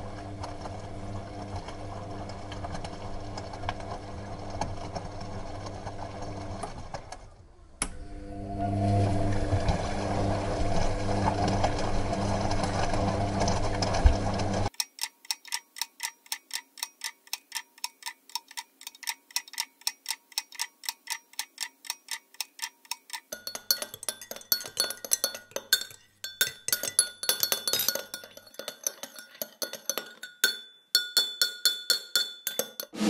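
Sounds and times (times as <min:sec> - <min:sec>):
mechanical ticking: 0:14.7 - 0:33.0
porcelain cups clinking: 0:23.3 - 0:33.0.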